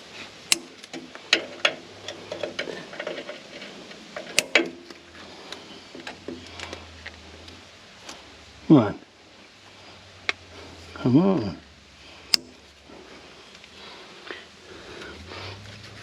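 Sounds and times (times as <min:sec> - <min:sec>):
clicks and knocks of hand tools: 0:00.5 - 0:06.8, 0:12.3 - 0:12.6.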